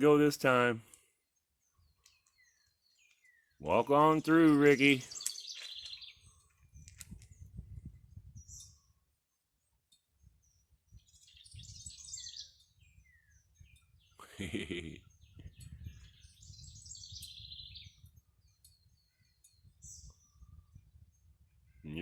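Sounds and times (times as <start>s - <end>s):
faint bird chirps: 5.0s - 21.9s.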